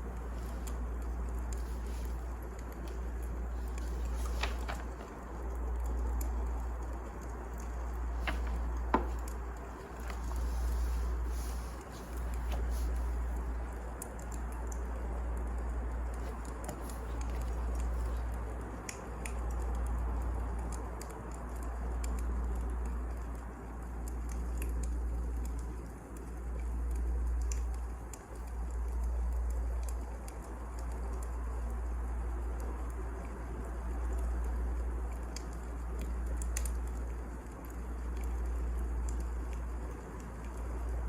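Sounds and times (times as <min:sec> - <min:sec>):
wood fire crackling: 0:00.0 - 0:41.0.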